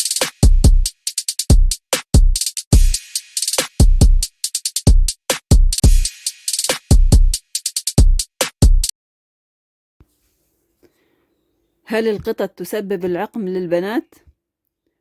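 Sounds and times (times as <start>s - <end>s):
hi-hat and cymbal hits: 0.0s - 8.9s
deep kick drum: 3.8s - 4.2s.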